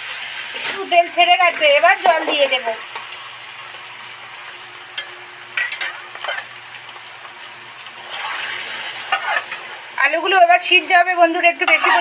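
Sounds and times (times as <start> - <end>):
potatoes frying in oil sizzling: 0.0 - 12.0
metal spatula scraping pan: 5.0 - 6.5, 8.0 - 9.8, 11.6 - 12.0.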